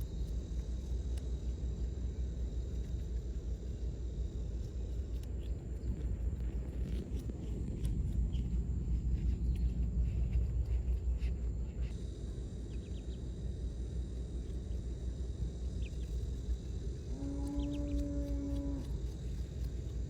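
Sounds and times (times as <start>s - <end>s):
low outdoor rumble: 0.0s - 20.0s
long animal call: 17.2s - 18.9s.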